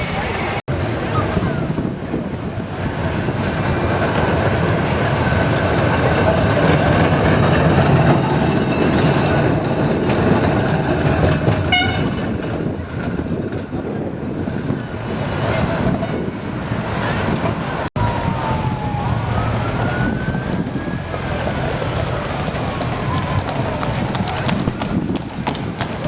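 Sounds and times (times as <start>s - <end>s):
tram rumbling past: 0.0s - 26.0s
short horn toot: 11.7s - 12.3s.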